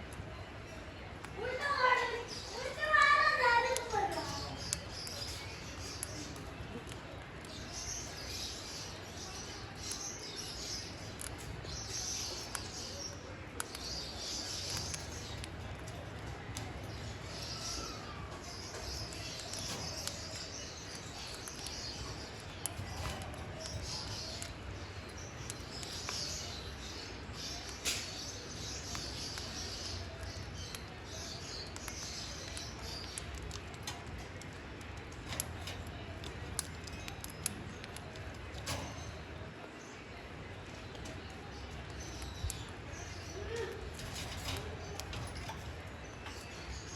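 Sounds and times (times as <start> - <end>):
birds chirping: 0.0 - 46.9
sharp clicks: 27.4 - 39.5.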